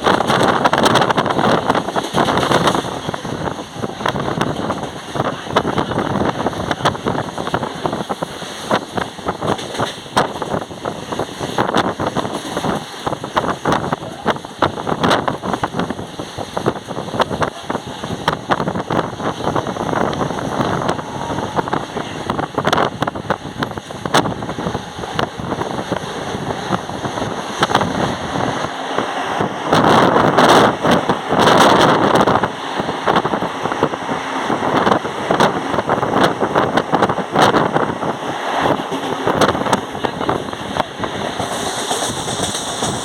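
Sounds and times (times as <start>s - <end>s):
rail clacks: 0.0s - 43.0s
train wheel and wind noise: 0.0s - 43.0s.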